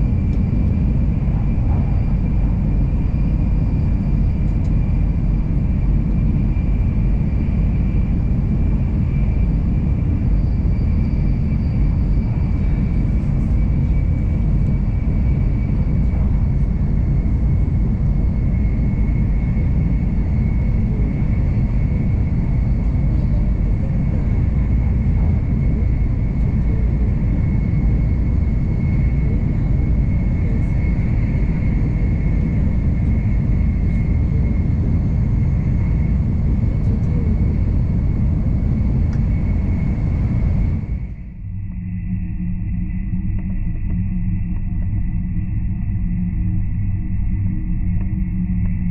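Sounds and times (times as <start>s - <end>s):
train cabin rumble: 0.0s - 6.6s, 11.4s - 41.2s
faint high whine: 0.0s - 48.9s.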